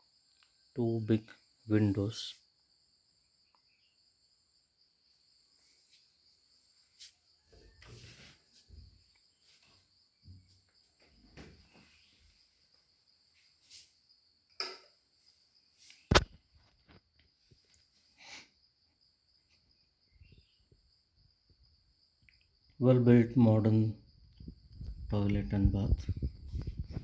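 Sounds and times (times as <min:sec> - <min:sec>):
insects trilling: 0:00.0 - 0:27.0
soft knocks and rustles: 0:07.5 - 0:12.3
sharp click: 0:16.1 - 0:16.4.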